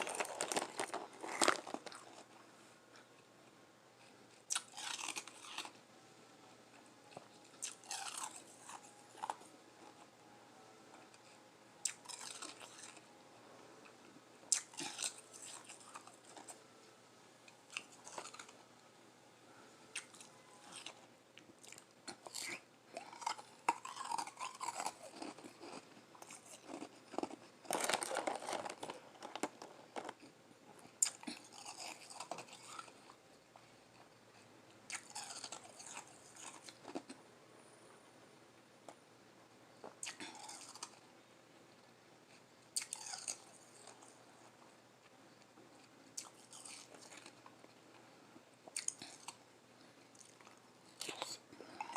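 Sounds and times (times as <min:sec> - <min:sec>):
chewing and crunching ice: 0:00.0 - 0:02.4, 0:04.0 - 0:05.8, 0:07.0 - 0:10.1, 0:11.0 - 0:13.3, 0:14.5 - 0:16.7, 0:17.5 - 0:18.7, 0:19.9 - 0:30.4, 0:31.0 - 0:33.2, 0:34.9 - 0:37.2, 0:39.9 - 0:41.0, 0:42.7 - 0:48.0, 0:48.6 - 0:49.5, 0:50.1 - 0:51.9.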